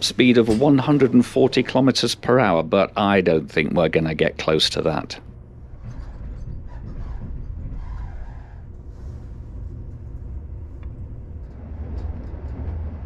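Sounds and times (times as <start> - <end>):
train coach rumbling: 0.0 - 13.0.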